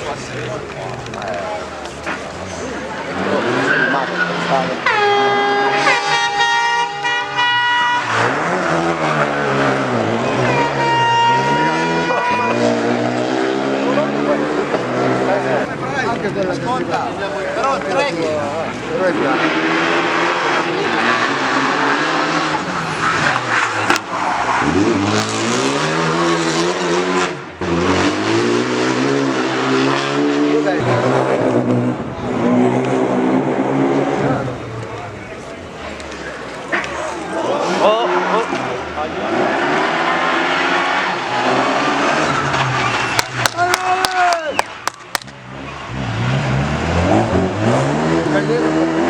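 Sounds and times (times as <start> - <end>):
rally car engine revving past: 2.5 - 16.7, 17.6 - 43.4, 45.4 - 49.0.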